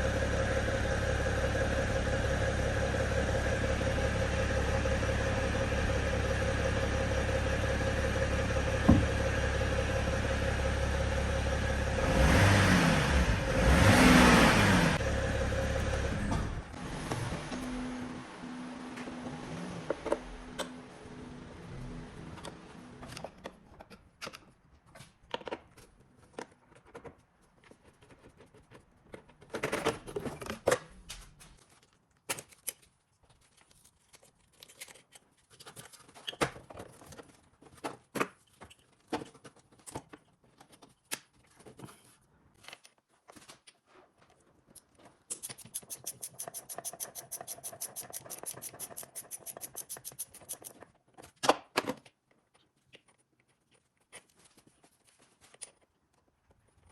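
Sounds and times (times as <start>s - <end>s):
tools clicking and scraping parts: 32.3s - 43.8s, 44.7s - 54.8s
fast even clicking: 45.4s - 50.8s.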